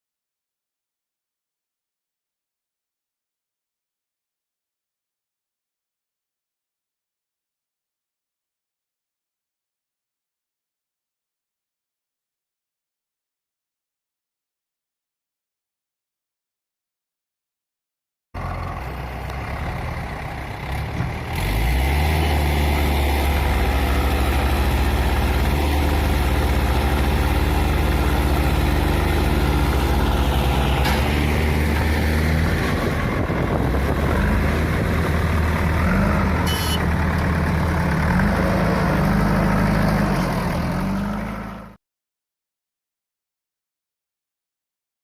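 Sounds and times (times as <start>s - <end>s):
heavy diesel engine revving: 18.4s - 41.8s
brief high squeal: 36.4s - 36.8s.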